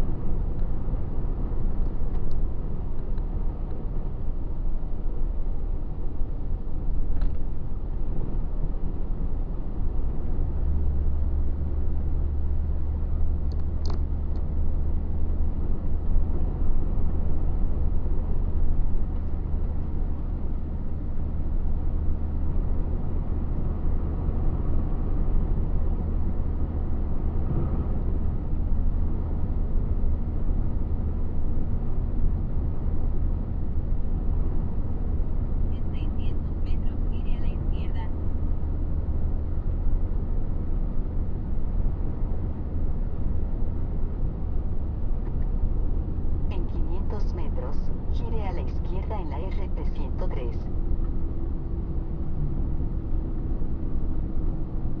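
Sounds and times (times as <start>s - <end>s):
truck engine and road drone: 0.0s - 55.0s.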